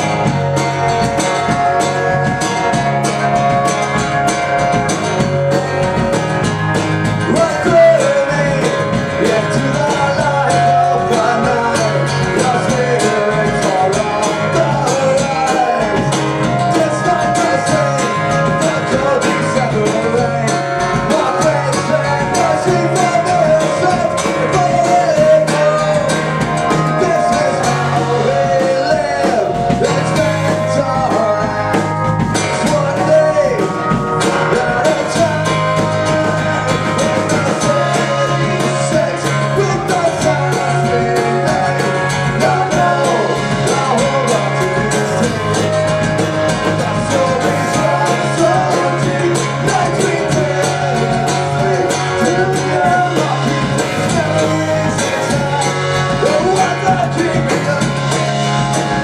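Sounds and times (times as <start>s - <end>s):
acoustic guitar: 0.0s - 59.0s
person singing: 7.0s - 59.0s.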